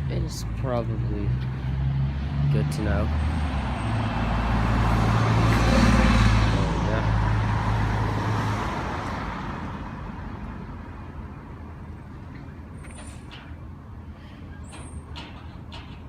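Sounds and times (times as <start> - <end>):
truck diesel engine: 0.0 - 16.0
short metal clanks: 14.7 - 16.0.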